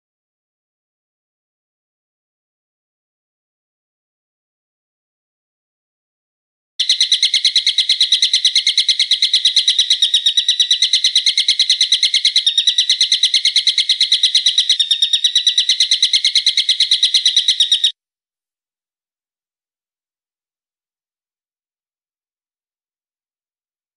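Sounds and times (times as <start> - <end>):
bird calling in rapid high notes: 6.8 - 17.9.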